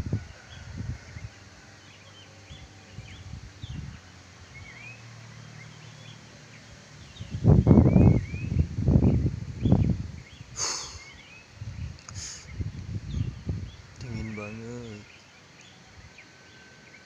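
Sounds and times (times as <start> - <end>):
birds chirping and calling: 1.0 - 17.0.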